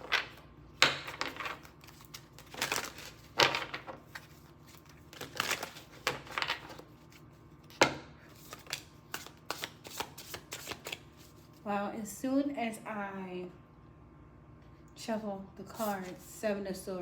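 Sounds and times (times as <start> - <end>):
cards slapping: 0.0 - 6.9, 7.7 - 11.3
cards riffling and rustling: 0.0 - 11.6.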